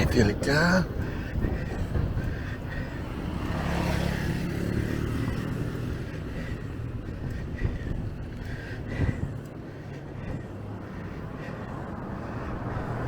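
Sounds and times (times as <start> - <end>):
vehicle engine passing: 2.5 - 8.0
steady low rumble: 5.3 - 13.0.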